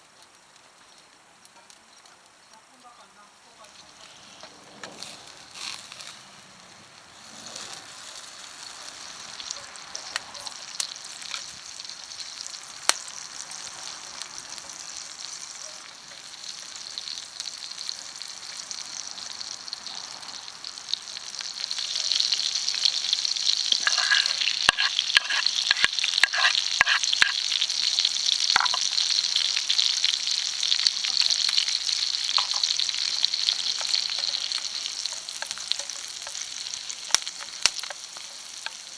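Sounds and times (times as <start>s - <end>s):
meat sizzling in a frying pan: 0.0s - 38.9s
utensil scraping a pan: 7.2s - 8.3s, 23.6s - 27.6s.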